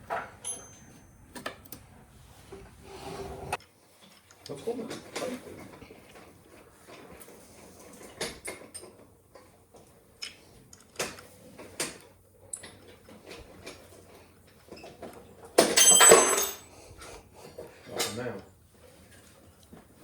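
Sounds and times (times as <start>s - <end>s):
metal clatter with ringing: 0.1s - 1.6s, 15.6s - 16.6s.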